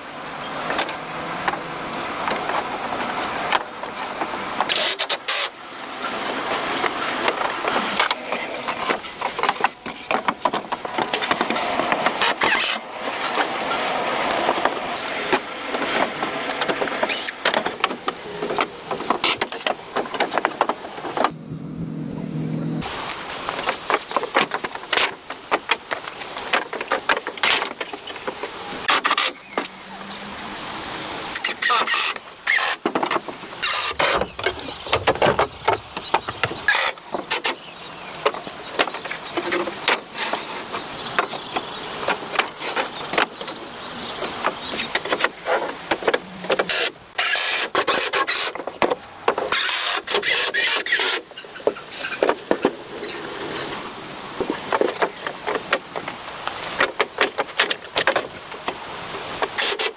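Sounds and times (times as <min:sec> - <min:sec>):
scraping noises: 0:31.4 - 0:37.6
knocks: 0:34.0 - 0:36.8.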